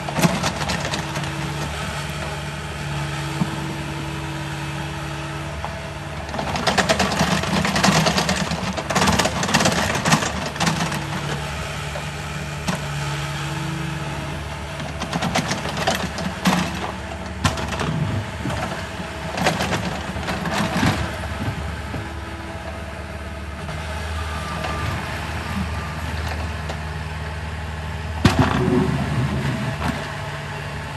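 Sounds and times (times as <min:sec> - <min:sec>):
engine idling: 0:00.0 - 0:30.9
rattling scraping noise: 0:28.3 - 0:30.2.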